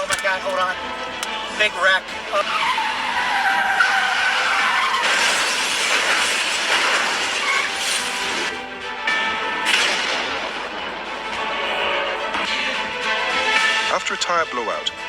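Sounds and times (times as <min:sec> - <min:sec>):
car tyres squealing: 0:01.3 - 0:08.5.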